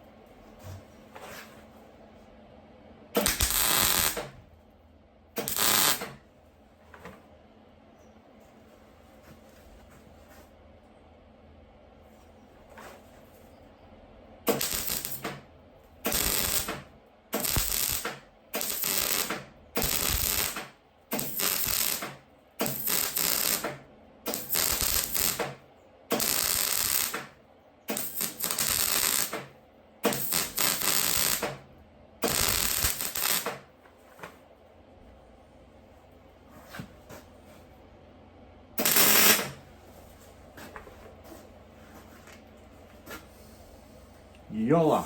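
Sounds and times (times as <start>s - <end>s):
crackling welding arc: 3.2s - 4.4s, 5.4s - 6.2s, 14.4s - 15.4s, 16.0s - 31.6s, 32.2s - 33.7s, 38.8s - 39.6s.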